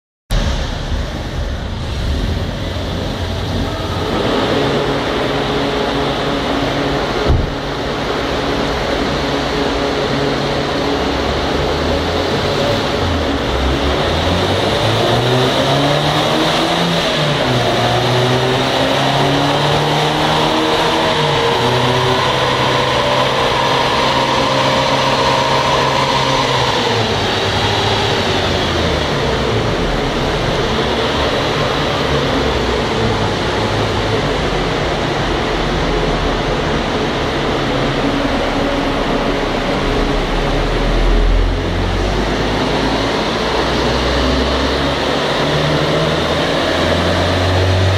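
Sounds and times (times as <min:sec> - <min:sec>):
steady rushing noise: 0:00.3 - 0:17.8, 0:18.6 - 0:47.9
car engine on dynamometer: 0:00.3 - 0:47.9.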